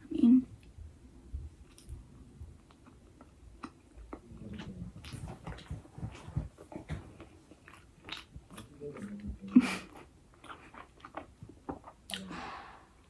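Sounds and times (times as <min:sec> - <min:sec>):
person chewing food: 0:00.6 - 0:13.0
soft low thumps: 0:00.8 - 0:02.1.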